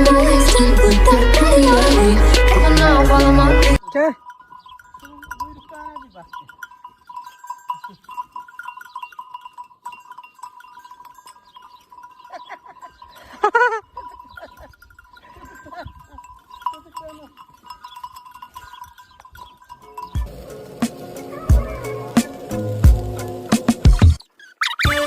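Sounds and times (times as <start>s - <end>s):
sheep bells clinking: 3.8s - 23.6s.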